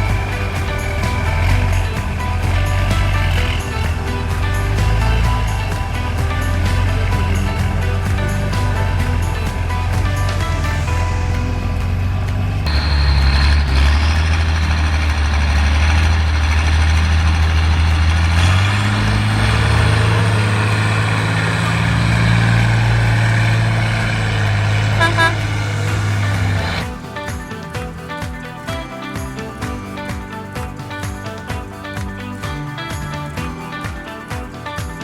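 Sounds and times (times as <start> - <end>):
truck engine running hard: 0.0 - 26.9.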